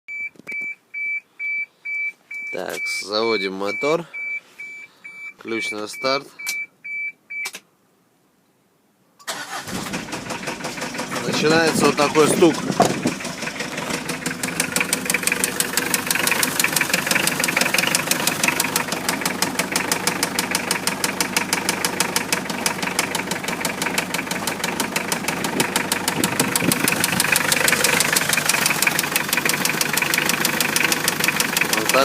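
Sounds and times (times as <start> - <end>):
diesel engine idling with knock: 10.1 - 32.0.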